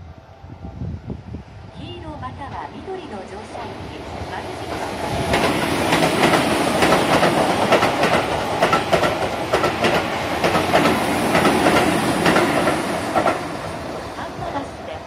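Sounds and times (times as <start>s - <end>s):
train wheels clattering over rail joints: 4.7s - 13.6s.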